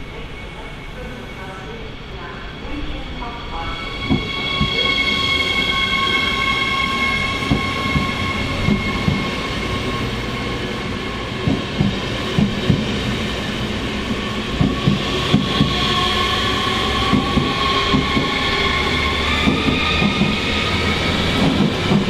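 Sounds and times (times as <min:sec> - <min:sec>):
high multi-tone train whine: 0:00.0 - 0:22.0
low train rumble: 0:00.0 - 0:22.0.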